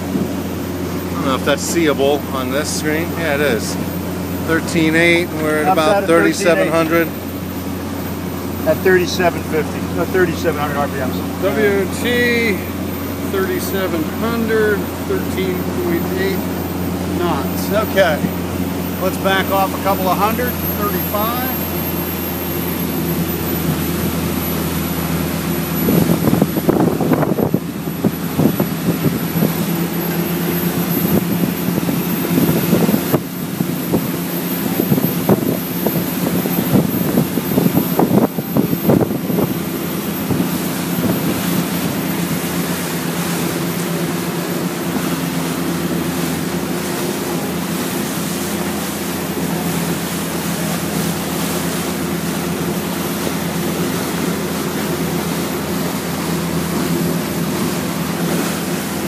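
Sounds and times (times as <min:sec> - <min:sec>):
boat diesel engine droning: 0:00.0 - 0:59.0
wind buffeting microphone: 0:25.7 - 0:42.8.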